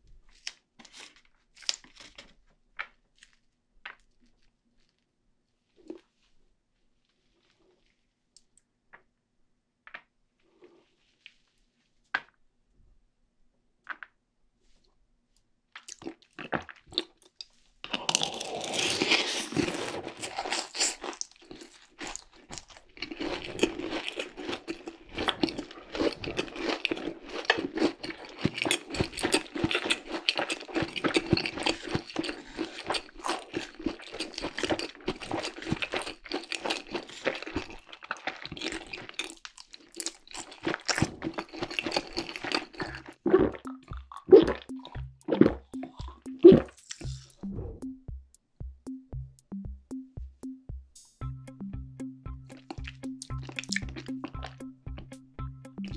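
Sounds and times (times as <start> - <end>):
crunchy chewing: 15.8 - 47.3.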